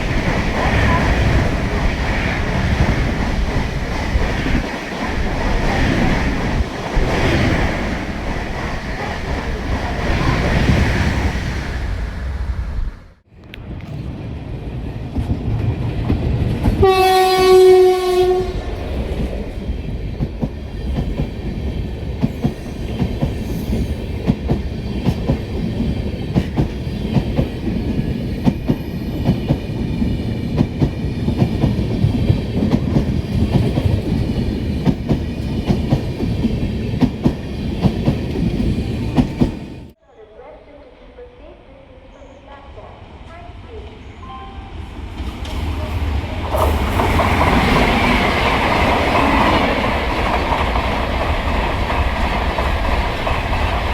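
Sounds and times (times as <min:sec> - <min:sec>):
train rumbling past: 0:00.0 - 0:53.9
train horn blast: 0:16.8 - 0:18.8.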